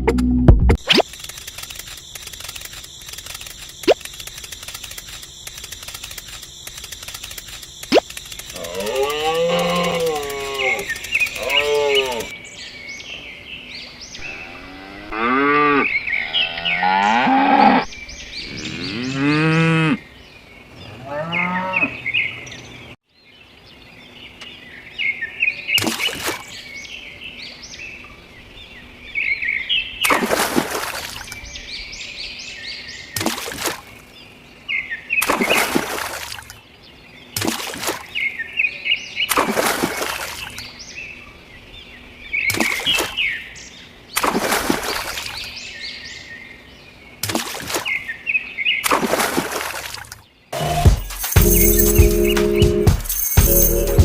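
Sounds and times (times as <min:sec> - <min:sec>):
birds chirping: 0:00.8 - 0:35.9, 0:36.5 - 0:48.9, 0:50.1 - 0:54.0
cows mooing: 0:08.6 - 0:12.3, 0:14.2 - 0:20.0, 0:20.9 - 0:22.0.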